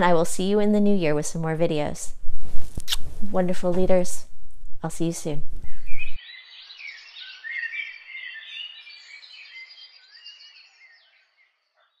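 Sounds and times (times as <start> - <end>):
birds chirping and twittering: 5.6 - 12.0.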